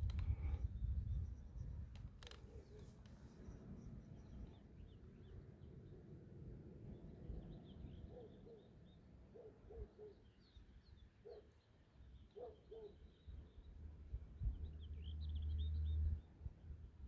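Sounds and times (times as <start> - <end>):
low bird calls: 12.2 - 16.2.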